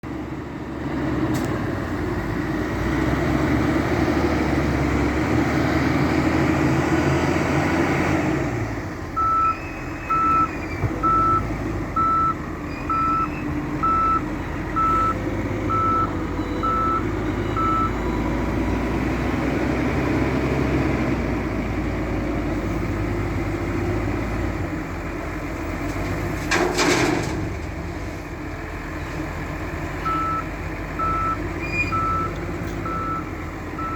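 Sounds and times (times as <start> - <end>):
diesel engines working: 0.0 - 33.9
reversing alarm beeping: 9.2 - 11.4, 12.0 - 18.8, 30.0 - 33.9.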